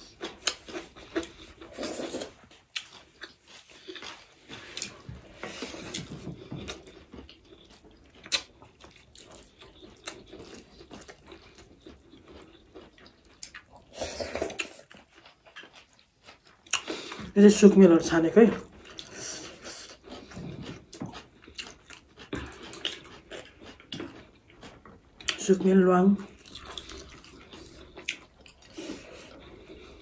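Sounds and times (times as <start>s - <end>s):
wet squelching and chewing: 0.0s - 17.4s, 26.2s - 30.0s.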